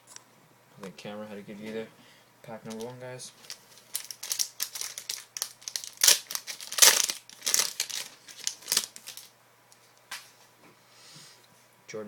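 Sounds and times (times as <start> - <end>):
foil card pack tearing and crinkling: 2.7 - 9.3.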